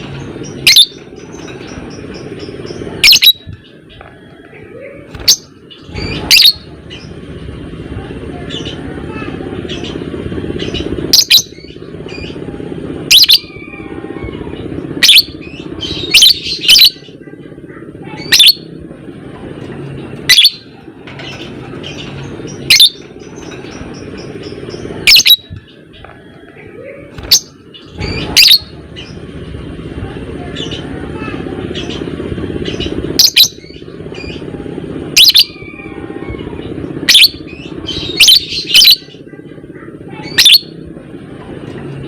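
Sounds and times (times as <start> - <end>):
busy bird chatter: 0.0 - 42.0
bird shrill calls: 0.5 - 1.6, 3.0 - 3.5, 5.2 - 7.1, 13.1 - 13.9, 15.0 - 17.0, 20.3 - 20.6, 21.9 - 25.6, 27.2 - 29.2, 35.2 - 36.0, 37.1 - 39.1, 40.2 - 40.7.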